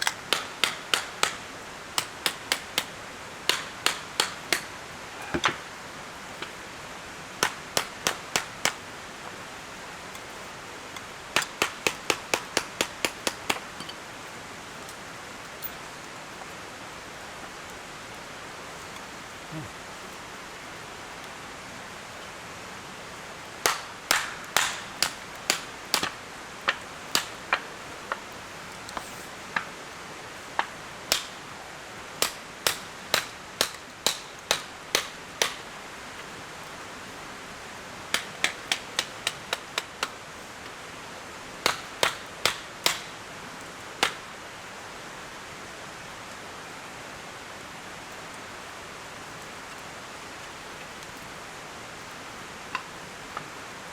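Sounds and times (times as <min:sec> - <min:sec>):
steady background hiss: 0:00.0 - 0:53.9
sharp loud knocks: 0:23.6 - 0:26.2.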